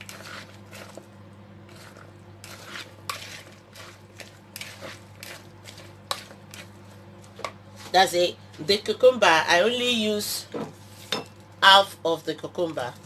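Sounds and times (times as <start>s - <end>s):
salad tossed in bowl: 0.0s - 8.0s.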